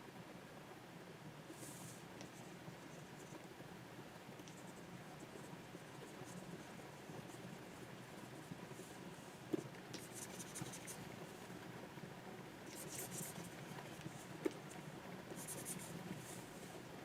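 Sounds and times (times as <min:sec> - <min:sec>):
scratchy pen strokes: 0:10.0 - 0:11.0, 0:12.7 - 0:14.2, 0:15.4 - 0:16.6.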